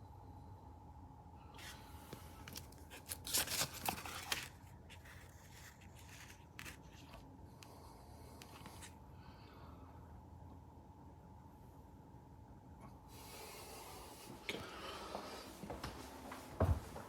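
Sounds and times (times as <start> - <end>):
faint steady hum: 0.0 - 17.0
crinkling and tearing: 1.6 - 7.2.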